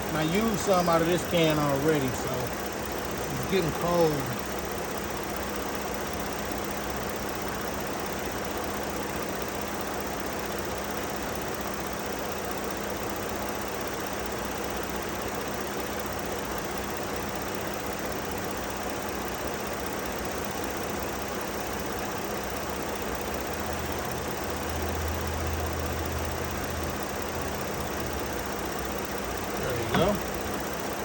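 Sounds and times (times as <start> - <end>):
car engine idling: 0.0 - 7.5, 25.5 - 31.0
air conditioning running: 0.0 - 31.0.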